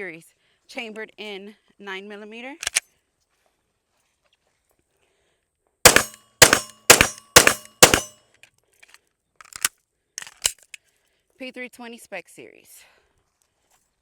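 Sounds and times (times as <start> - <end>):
pistol gunshots: 5.9 - 8.1
sharp clicks: 5.9 - 8.1.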